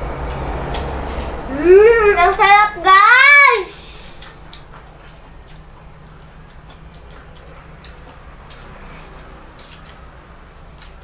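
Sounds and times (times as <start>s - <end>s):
people chewing: 3.7s - 11.0s.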